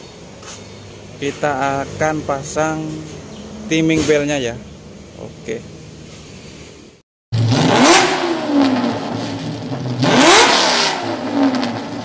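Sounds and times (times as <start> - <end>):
car engine revving: 7.4 - 12.0.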